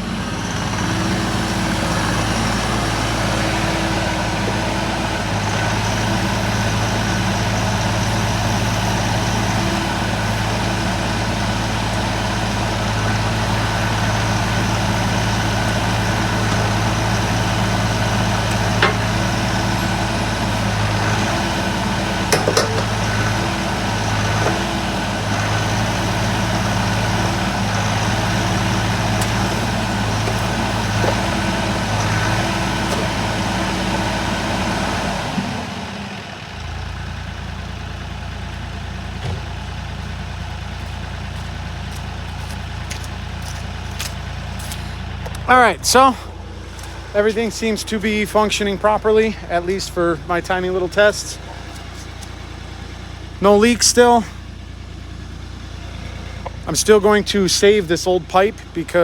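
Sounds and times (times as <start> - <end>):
excavator diesel engine running: 0.0 - 59.0
sharp metallic knocks: 18.8 - 19.5, 22.3 - 23.4.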